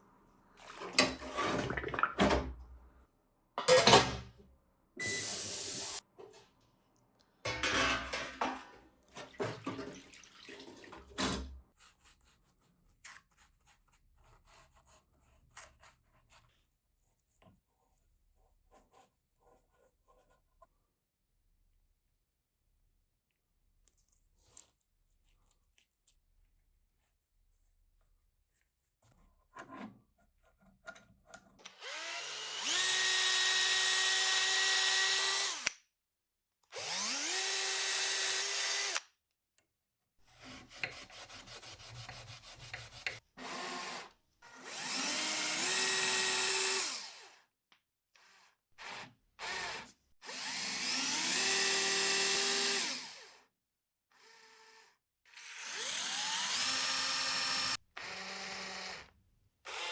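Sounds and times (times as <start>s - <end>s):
power drill whining: 5.0s - 6.0s, 31.7s - 35.7s, 36.7s - 39.0s, 43.4s - 47.3s, 48.8s - 53.2s, 55.4s - 59.1s, 59.7s - 59.9s.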